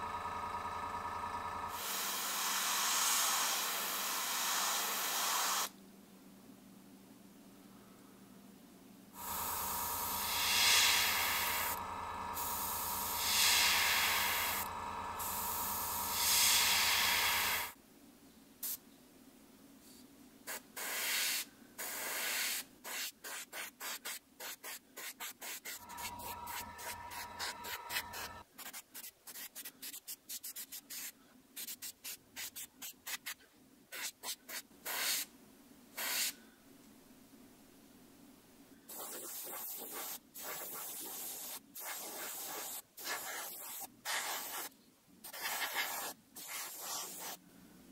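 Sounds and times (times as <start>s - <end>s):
steady hum: 0.0s - 4.1s, 9.2s - 17.8s, 25.8s - 28.4s
airbrush hissing: 1.7s - 5.7s, 9.2s - 17.8s, 25.4s - 28.4s, 38.9s - 44.7s, 45.4s - 47.4s.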